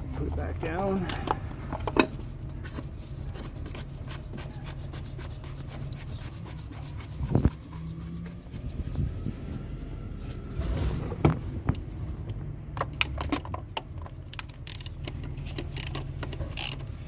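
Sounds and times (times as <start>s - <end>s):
plastic parts rubbing: 0.0s - 12.0s.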